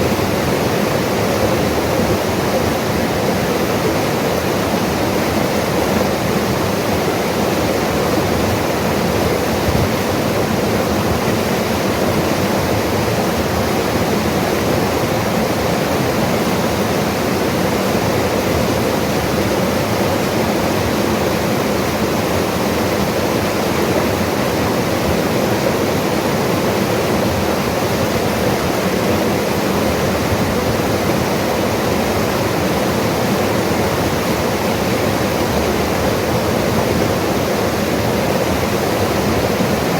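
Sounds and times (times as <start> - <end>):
mountain river flowing: 0.0 - 39.9.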